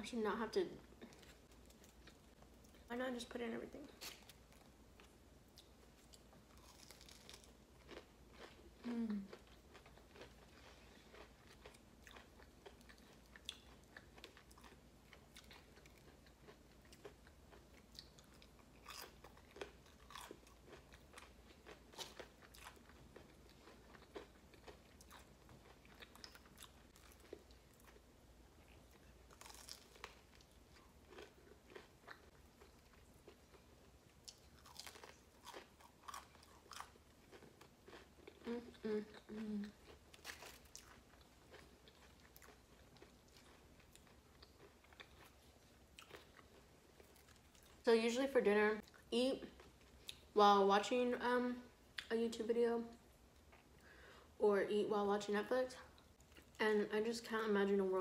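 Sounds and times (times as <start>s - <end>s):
person chewing crunchy food: 4.0s - 47.8s.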